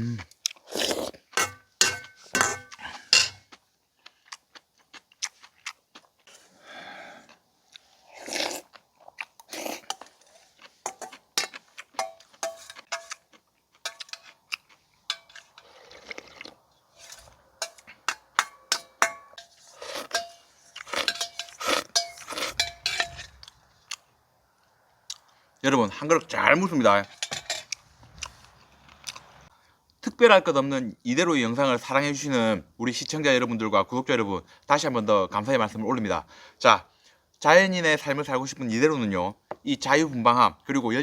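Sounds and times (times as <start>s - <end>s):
crunchy chewing: 2.7s - 18.0s.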